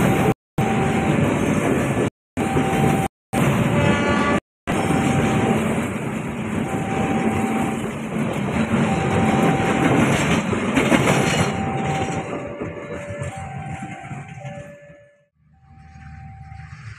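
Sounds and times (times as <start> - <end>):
train rumbling past: 0.0 - 16.9.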